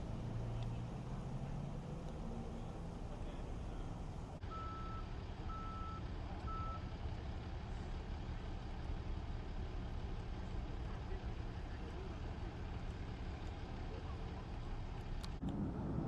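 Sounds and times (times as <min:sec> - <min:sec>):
low engine rumble: 0:00.0 - 0:16.0
reversing alarm beeping: 0:04.5 - 0:06.8.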